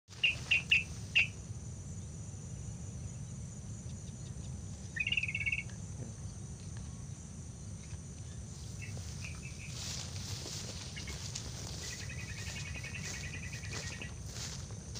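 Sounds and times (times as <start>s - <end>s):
high insect drone: 0.1s - 14.9s
bulbul chattering and chirping: 0.2s - 1.4s, 3.8s - 5.8s.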